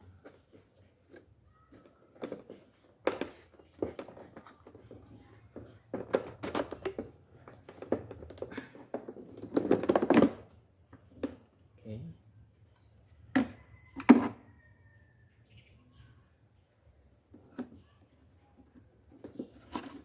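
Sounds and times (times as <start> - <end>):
rattling and crinkling: 0.0 - 11.6, 18.5 - 20.0.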